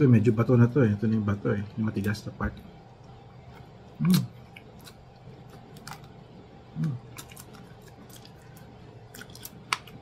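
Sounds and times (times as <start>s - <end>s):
person chewing: 3.5s - 10.0s
person humming mm: 6.8s - 7.1s
small crunches: 6.8s - 10.0s.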